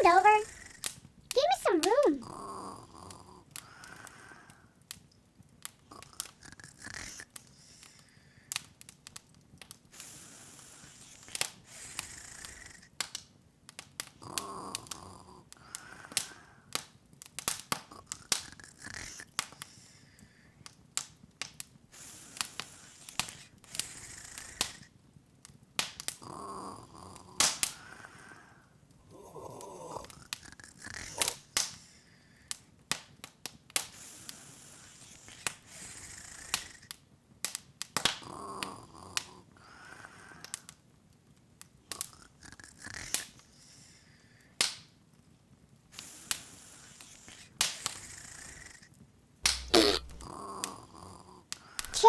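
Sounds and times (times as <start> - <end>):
wood fire crackling and popping: 4.9 - 10.0, 16.1 - 18.6, 25.4 - 26.2, 36.5 - 38.2, 49.4 - 50.3.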